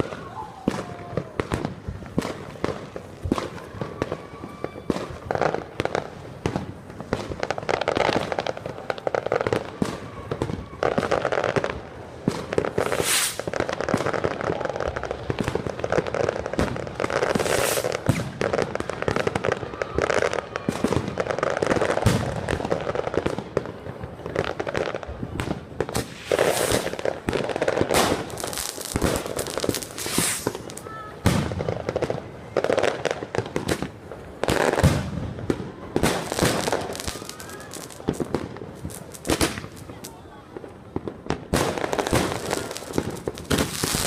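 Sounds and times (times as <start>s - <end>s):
fireworks bangs and crackling: 0.0s - 44.0s
firework whistles: 3.4s - 5.4s, 12.4s - 13.5s, 17.2s - 21.2s, 25.4s - 27.1s, 27.8s - 31.5s, 34.6s - 39.9s
loud hissing bursts: 12.8s - 13.5s, 29.8s - 30.7s.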